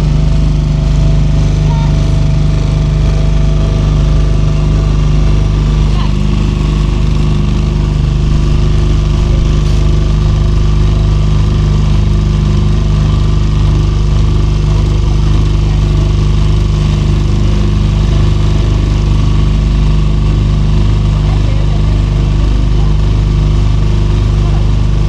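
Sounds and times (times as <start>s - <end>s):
motor boat engine running: 0.0s - 25.0s.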